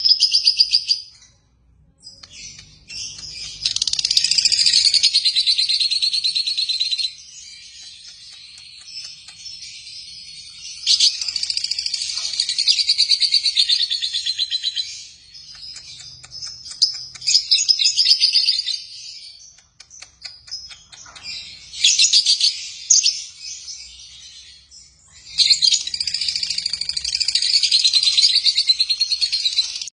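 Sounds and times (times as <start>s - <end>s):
lovebirds chattering: 2.0s - 13.6s, 14.2s - 18.6s.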